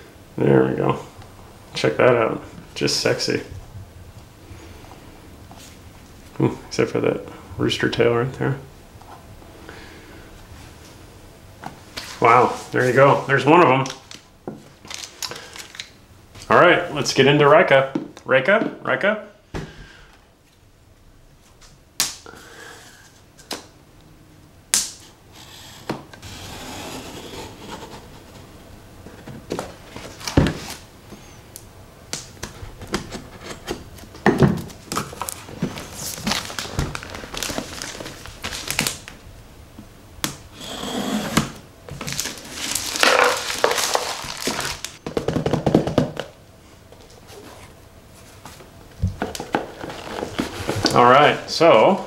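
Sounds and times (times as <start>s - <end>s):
plastic packaging crinkling: 13.9s - 16.0s, 34.7s - 39.2s, 41.9s - 45.0s.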